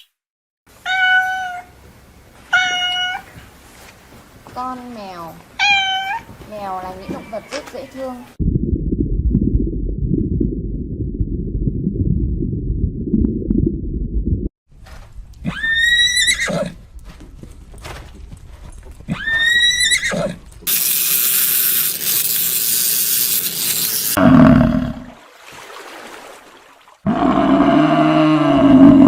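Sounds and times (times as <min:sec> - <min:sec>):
low rumbling noise: 0:08.4 - 0:14.5
horse whinnying: 0:15.4 - 0:16.8, 0:19.1 - 0:20.4.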